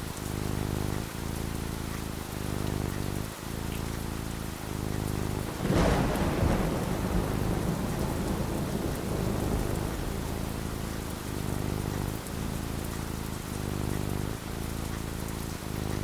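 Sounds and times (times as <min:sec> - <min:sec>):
rain falling: 0:00.0 - 0:16.0
thunder rumbling: 0:05.2 - 0:14.4.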